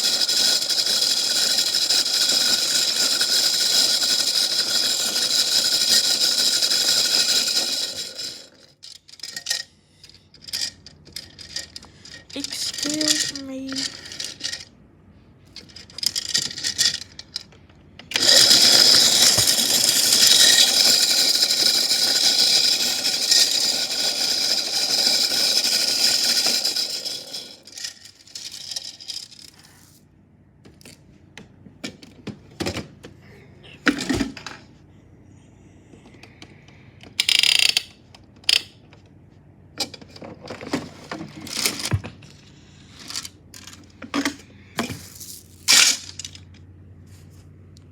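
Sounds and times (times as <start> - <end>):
metal chains rattling in toy machine: 0.0 - 14.7, 15.5 - 17.5, 18.1 - 29.8, 37.2 - 38.7, 42.8 - 44.0, 44.8 - 46.5.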